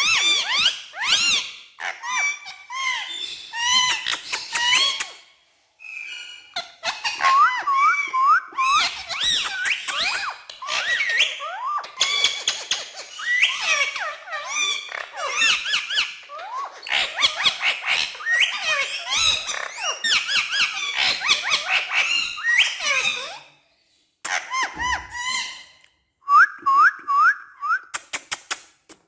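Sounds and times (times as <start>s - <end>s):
parrot chattering and whistling: 6.5s - 23.4s.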